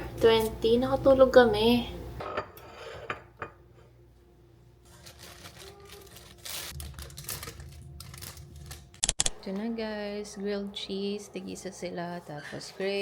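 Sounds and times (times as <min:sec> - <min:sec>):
dishes and utensils clattering: 0:02.2 - 0:03.7.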